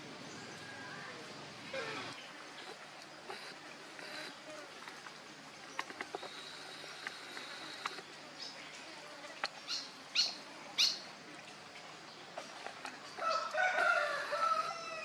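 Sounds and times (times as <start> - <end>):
faint clicks: 2.6 - 8.2.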